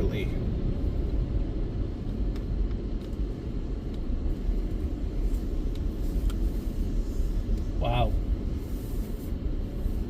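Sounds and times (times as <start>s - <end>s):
car driving slowly: 0.0s - 10.0s.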